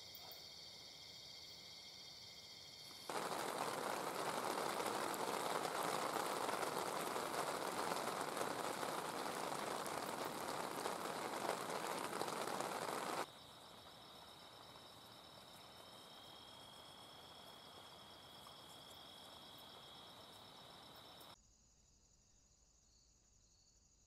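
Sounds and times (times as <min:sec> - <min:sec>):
insects trilling: 0:00.0 - 0:21.4
heavy rain falling: 0:02.9 - 0:21.4.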